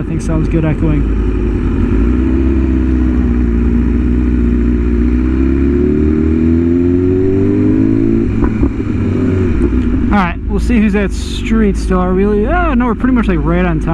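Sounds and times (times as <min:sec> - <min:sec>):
motorcycle engine cruising: 0:00.0 - 0:13.9
wind rumbling on microphone: 0:01.6 - 0:10.5.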